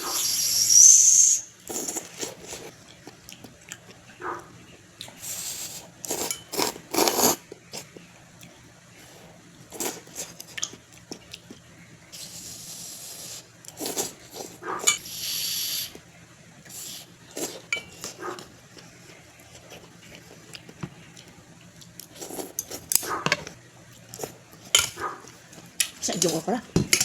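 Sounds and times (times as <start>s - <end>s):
chewing: 1.6s - 12.4s, 13.2s - 15.2s, 16.6s - 26.4s
utensil clinking on a dish: 17.6s - 18.2s, 24.6s - 25.0s.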